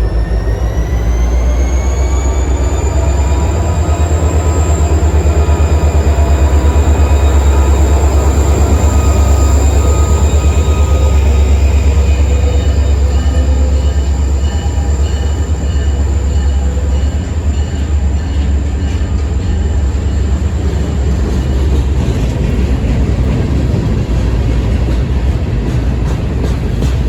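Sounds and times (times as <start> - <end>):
faint high whining tones: 0.0 - 20.6
diesel locomotive engine revving: 0.0 - 27.0.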